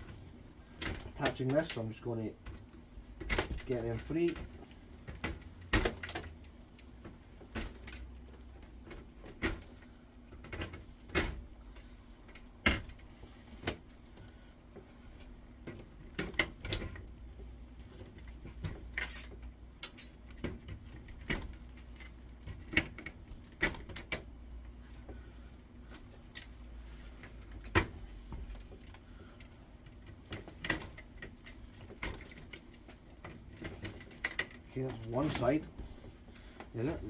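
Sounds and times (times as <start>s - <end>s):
clicks and knocks of connectors: 0.8s - 11.5s, 15.6s - 24.4s, 27.2s - 35.9s.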